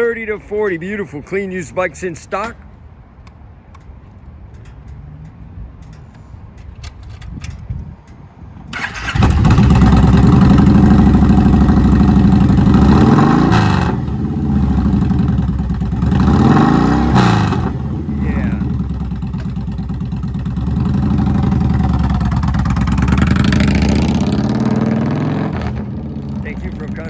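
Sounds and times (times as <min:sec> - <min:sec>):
motorcycle engine starting and revving: 0:06.9 - 0:27.0.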